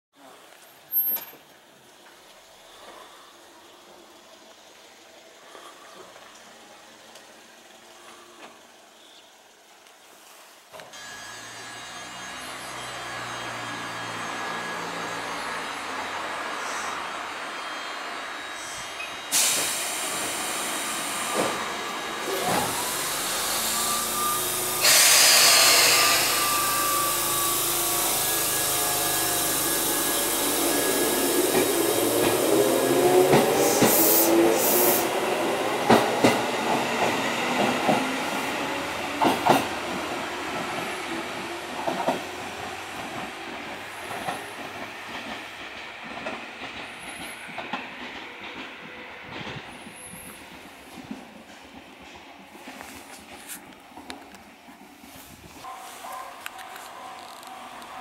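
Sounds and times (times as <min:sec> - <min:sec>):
train motors whining: 0:11.0 - 0:38.0
compressed air hiss: 0:19.3 - 0:31.9, 0:33.6 - 0:35.1.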